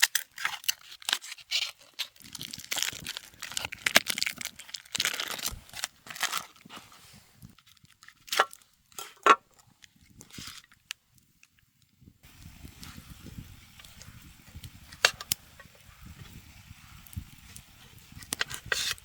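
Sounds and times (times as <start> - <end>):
faint low crackle: 9.5 - 19.0.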